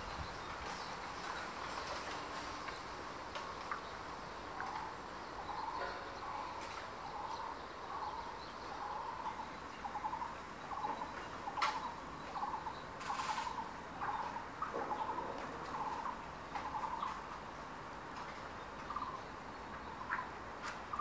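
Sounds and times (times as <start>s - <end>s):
forest background noise: 0.0s - 21.0s
bird buzzy calls: 4.5s - 17.1s.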